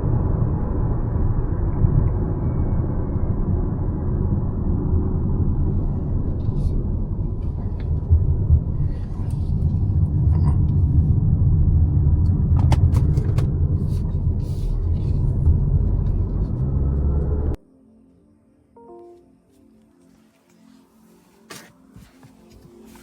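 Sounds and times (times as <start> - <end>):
car engine and road noise: 0.0 - 17.6.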